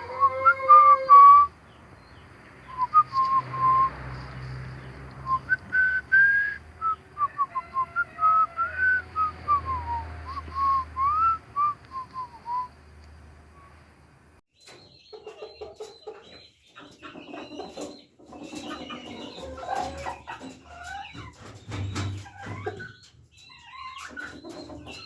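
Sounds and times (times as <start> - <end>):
rooster crowing: 0.0 - 1.5, 7.0 - 10.4
short whistled notes: 2.7 - 4.0.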